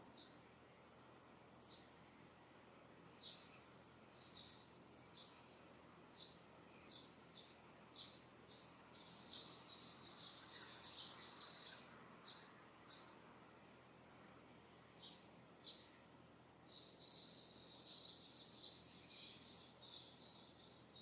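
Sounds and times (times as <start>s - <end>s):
faint steady background noise: 0.0s - 21.0s
birds chirping: 1.6s - 2.0s, 3.2s - 5.6s, 6.2s - 13.2s, 16.7s - 21.0s.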